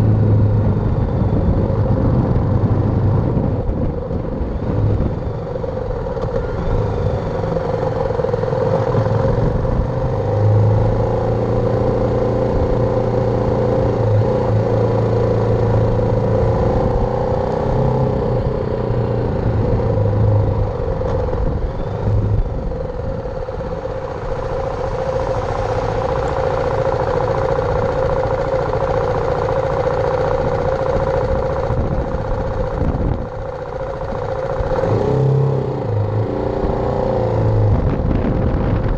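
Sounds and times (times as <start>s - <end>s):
motorcycle engine running: 0.0s - 38.9s
steady rushing noise: 18.4s - 38.9s.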